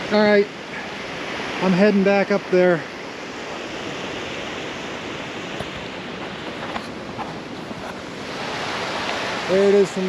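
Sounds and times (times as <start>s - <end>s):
fast-flowing creek water: 0.0s - 10.0s.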